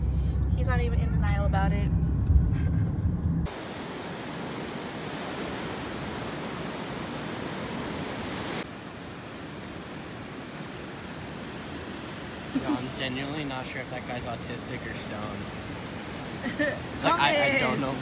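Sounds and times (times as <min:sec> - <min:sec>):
low car cabin rumble: 0:00.0 - 0:03.6
ocean surf rushing: 0:03.5 - 0:18.0.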